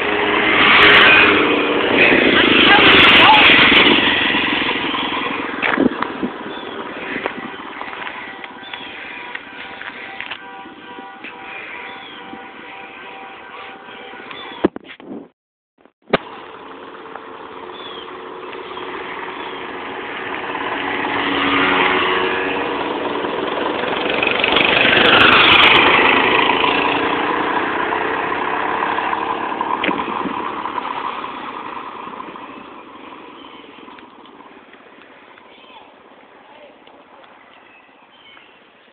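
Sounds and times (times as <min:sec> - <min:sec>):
motorbike passing by: 0:00.0 - 0:10.1, 0:16.3 - 0:34.6.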